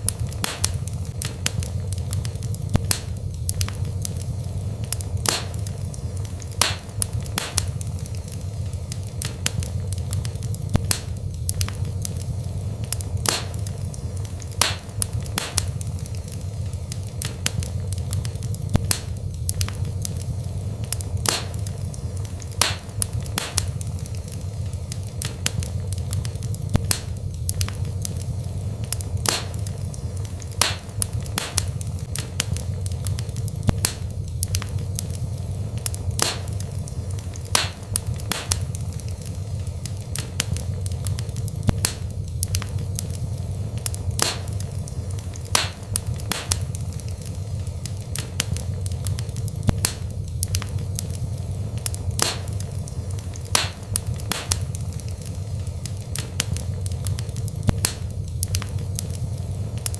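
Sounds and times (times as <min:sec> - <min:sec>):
burning logs crackling and popping: 0:00.0 - 0:59.9
fire low rumble: 0:00.0 - 0:59.9.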